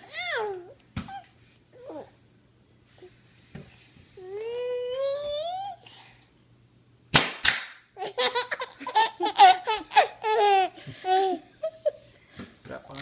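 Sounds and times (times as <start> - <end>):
nail gun firing: 7.1 - 7.8
infant giggling: 8.0 - 12.1.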